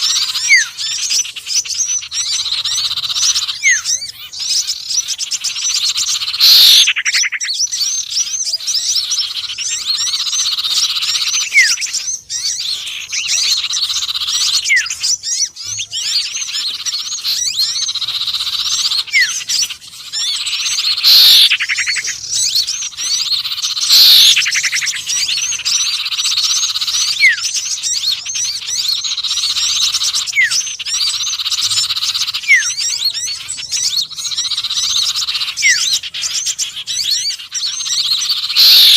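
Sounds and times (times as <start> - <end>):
birds chirping and twittering: 0.0 - 38.9
loud downward-sweeping bird call: 0.0 - 38.9
short falling whistles: 6.4 - 7.0, 21.0 - 21.6, 23.9 - 24.5, 38.6 - 38.9.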